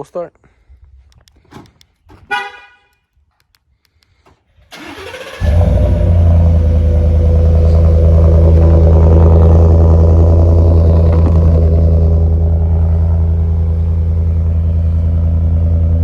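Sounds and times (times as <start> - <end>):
car engine idling: 4.2 - 16.0.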